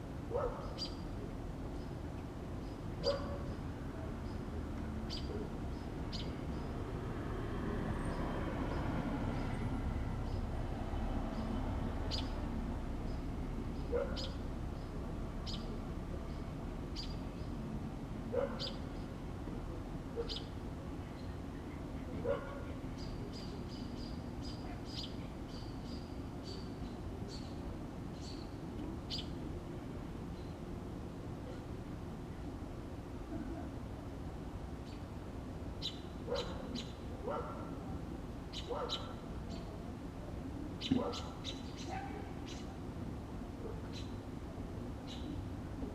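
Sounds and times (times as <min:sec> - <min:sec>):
small birds chirping: 0:00.4 - 0:07.1, 0:07.9 - 0:17.7, 0:18.4 - 0:19.4, 0:20.2 - 0:29.5, 0:35.8 - 0:37.4, 0:38.5 - 0:39.8, 0:40.7 - 0:42.8, 0:43.7 - 0:44.4, 0:45.0 - 0:45.6.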